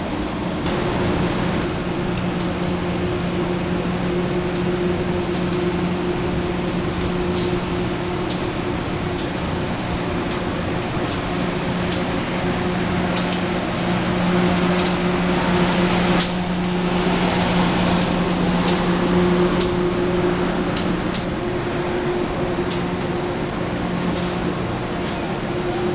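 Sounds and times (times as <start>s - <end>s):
locomotive idling: 0.0s - 25.9s
steam hiss: 23.8s - 25.9s.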